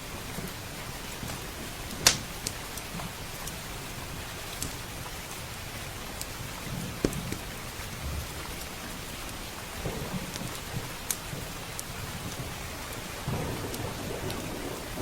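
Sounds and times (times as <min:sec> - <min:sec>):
wood fire crackling: 0:00.0 - 0:14.9
rain pattering on a roof: 0:00.0 - 0:15.0
low rolling thunder: 0:09.7 - 0:15.0.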